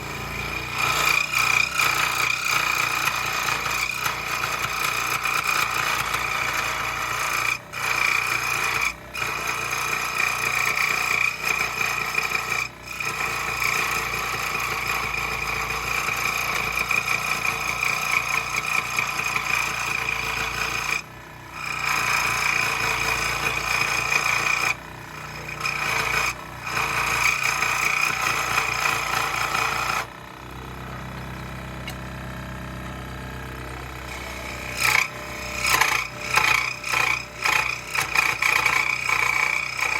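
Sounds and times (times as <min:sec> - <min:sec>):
power saw cutting wood: 0:00.0 - 0:39.9
saw motor running: 0:00.0 - 0:39.9.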